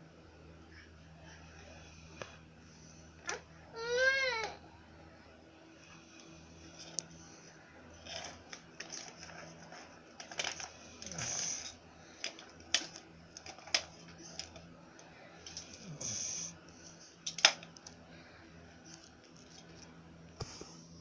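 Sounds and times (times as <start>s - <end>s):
faint steady hum: 0.0s - 21.0s
dog snoring and snuffling: 10.9s - 11.8s, 15.6s - 17.0s.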